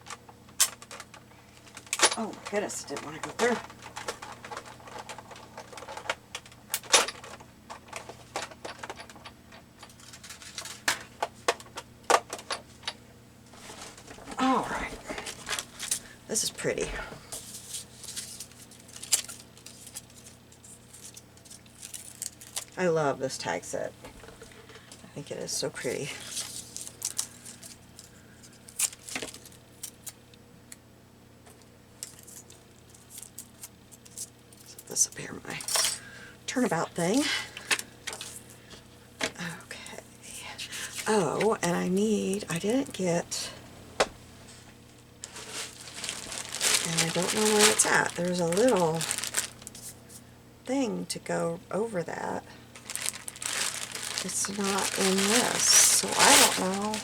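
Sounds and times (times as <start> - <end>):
faint rustles: 44.4 - 50.3, 52.8 - 57.0.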